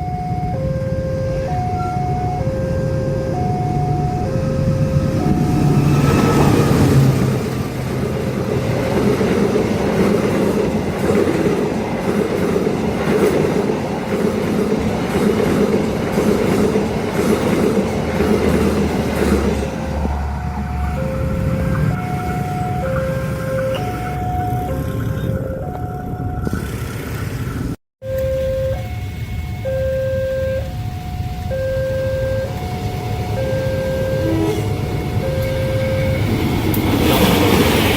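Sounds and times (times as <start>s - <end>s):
two-tone crossing alarm: 0.0s - 9.0s, 17.8s - 26.8s, 28.0s - 37.9s
train wheels clattering: 8.4s - 20.2s.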